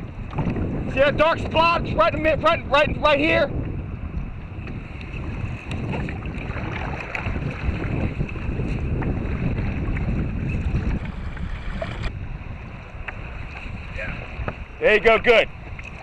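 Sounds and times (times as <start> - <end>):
wind buffeting microphone: 0.0 - 16.0
light water sounds: 4.6 - 16.0.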